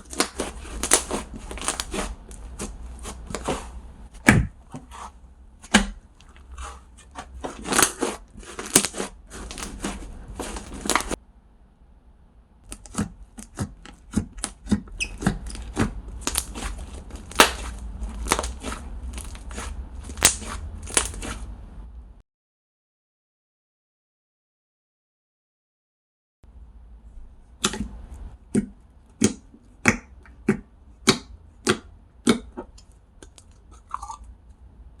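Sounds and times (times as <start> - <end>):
slime squishing with sticky clicks: 0.0 - 4.5, 5.6 - 11.2, 12.6 - 21.4, 27.6 - 34.3.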